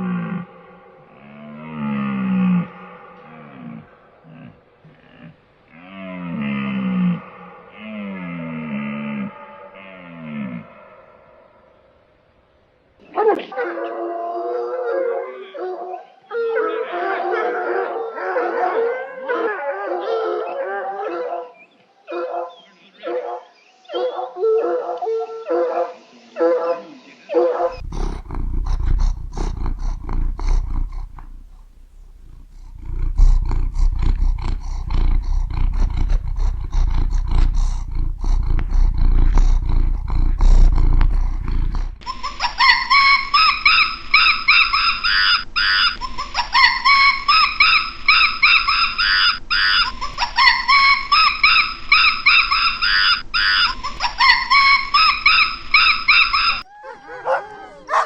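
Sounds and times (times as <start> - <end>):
high rising animal calls: 27.7 - 42.0
deep rumbling animal call: 27.7 - 42.1.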